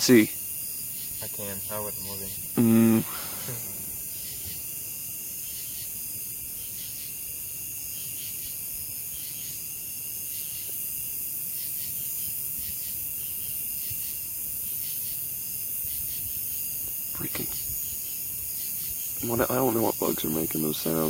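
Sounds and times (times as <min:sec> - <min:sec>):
high hiss: 0:00.0 - 0:05.2, 0:16.9 - 0:21.0
insects chirping: 0:00.0 - 0:21.0.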